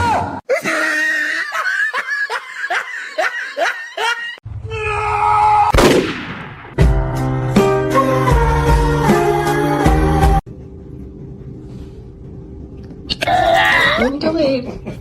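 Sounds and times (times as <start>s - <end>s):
person laughing hard: 0.5s - 4.4s.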